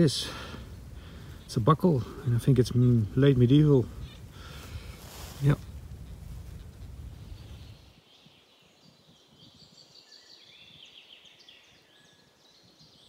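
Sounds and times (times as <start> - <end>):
wind rumble on microphone: 0.0 - 11.4
birds chirping and trilling: 0.0 - 13.0.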